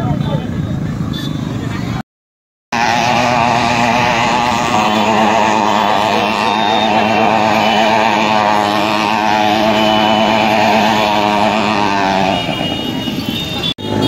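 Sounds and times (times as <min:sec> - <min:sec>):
motorcycle engine at high revs: 0:02.8 - 0:14.0.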